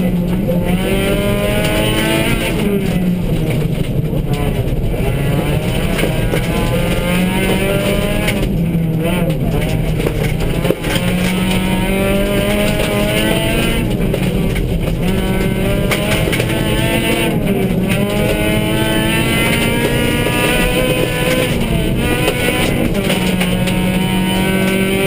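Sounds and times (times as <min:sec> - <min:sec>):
rally car engine revving: 0:00.0 - 0:25.0
road and gravel noise: 0:00.0 - 0:25.0.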